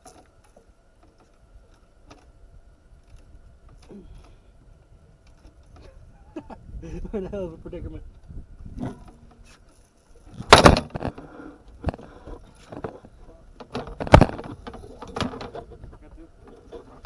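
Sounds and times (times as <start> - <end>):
loud sharp knocks of gear: 10.4 - 11.1.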